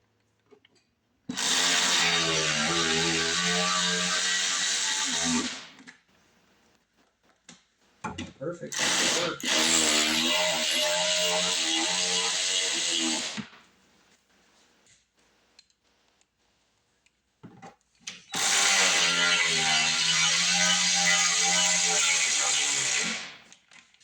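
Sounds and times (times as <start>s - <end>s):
faint clicks and handling sounds: 0.0s - 1.0s, 5.8s - 8.4s, 14.0s - 18.3s, 23.5s - 24.0s
power drill driving screws: 1.3s - 5.8s, 8.7s - 13.6s, 18.2s - 23.5s.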